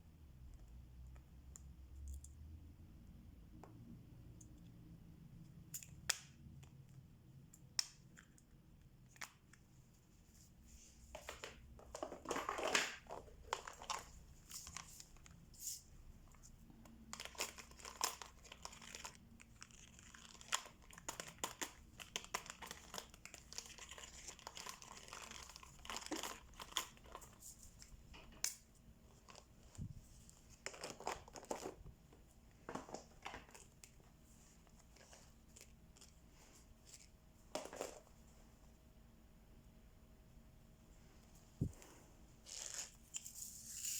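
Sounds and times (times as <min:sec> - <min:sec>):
thin plastic crinkling: 0:16.4 - 0:31.9.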